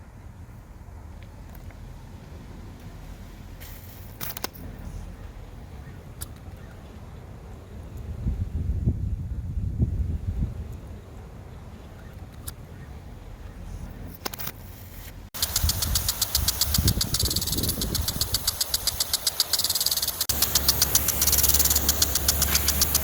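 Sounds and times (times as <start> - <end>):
engine knocking steadily: 15.4 - 23.0
faint clicks: 15.4 - 23.0.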